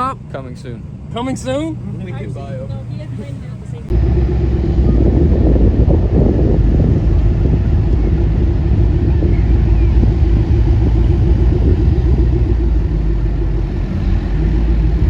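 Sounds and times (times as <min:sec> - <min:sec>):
motor vehicle running: 0:00.0 - 0:15.0.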